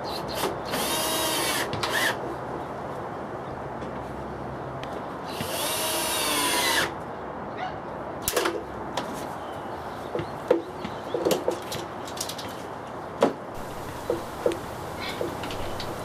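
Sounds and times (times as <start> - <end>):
tools and wood clicking and knocking: 10.2 - 12.6, 13.2 - 16.0.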